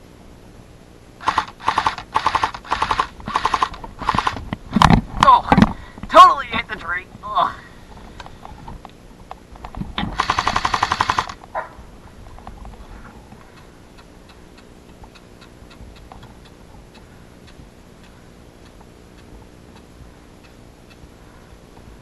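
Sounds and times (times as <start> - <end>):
airsoft gun full-auto burst: 1.2 - 4.4, 10.1 - 11.4
faint ticks: 12.4 - 21.1.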